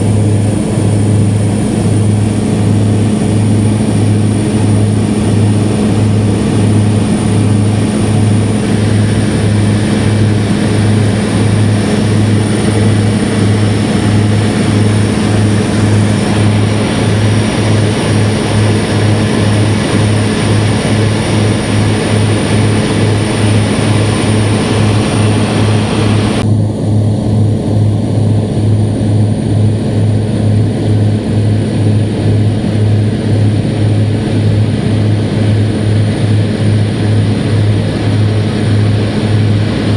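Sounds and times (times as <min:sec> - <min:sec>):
propeller airplane engine drone: 0:00.0 - 0:39.9.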